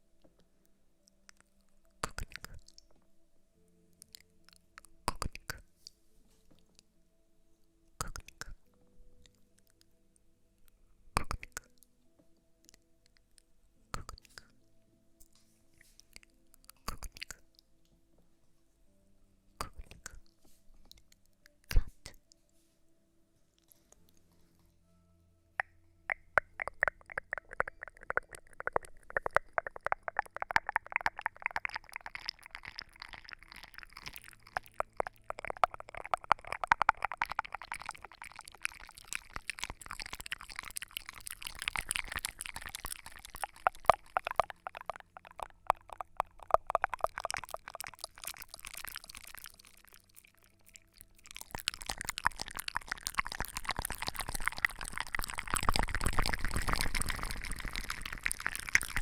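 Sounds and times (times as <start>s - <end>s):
rapid irregular crackles and clicks: 25.6s - 59.0s
hissing pouring sound: 26.1s - 59.0s.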